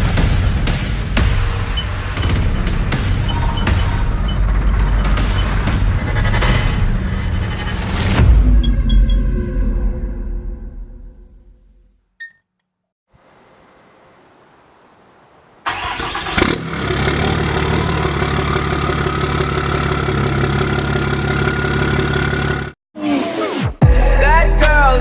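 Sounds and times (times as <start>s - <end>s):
diesel engine cranking and idling: 1.2s - 8.6s, 15.7s - 22.8s
turbo whistle: 1.7s - 5.5s.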